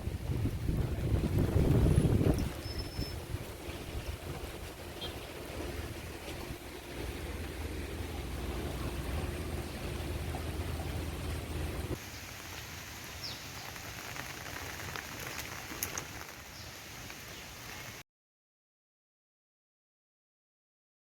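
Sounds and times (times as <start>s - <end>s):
heavy rain hiss: 3.2s - 18.0s
rain drop ticks: 12.2s - 17.9s.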